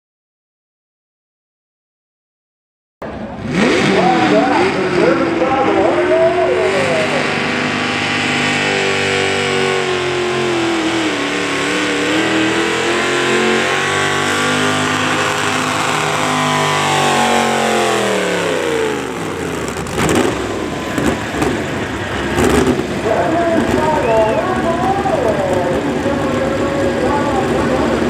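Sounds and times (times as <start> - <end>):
vehicle engine revving under load: 3.0 - 28.0.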